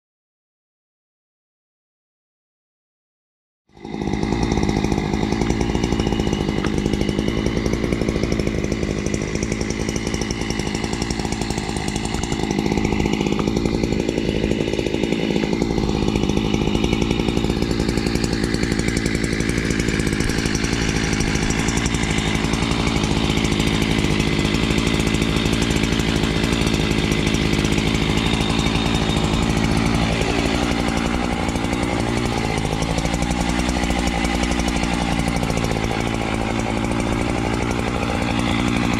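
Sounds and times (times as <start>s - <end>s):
chainsaw cutting wood: 3.7s - 38.9s.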